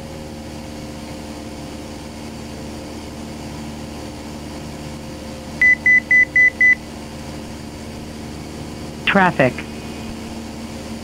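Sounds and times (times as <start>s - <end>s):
light aircraft engine droning: 0.0s - 11.0s
high-pitched cockpit alert beeps: 5.6s - 6.8s.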